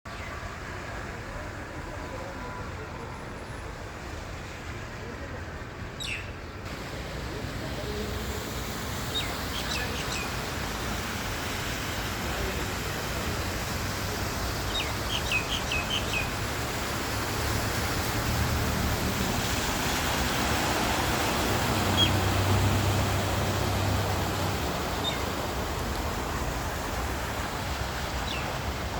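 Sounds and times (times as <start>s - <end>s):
outdoor noise: 0.0s - 28.9s
small birds chirping: 9.0s - 10.4s, 14.6s - 16.4s, 21.8s - 22.4s, 24.9s - 25.3s, 28.2s - 28.6s.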